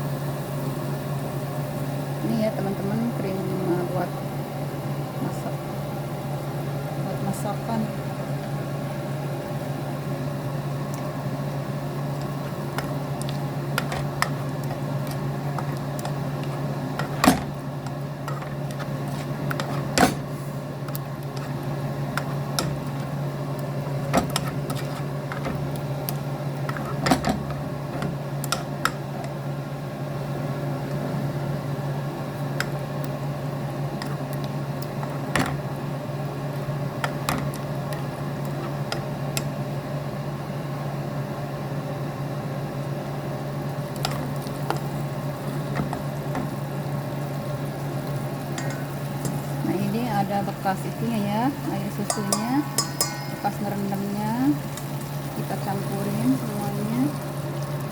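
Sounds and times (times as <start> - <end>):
low mechanical hum: 0.0 - 57.9
utensil knocking against pan: 52.0 - 53.7.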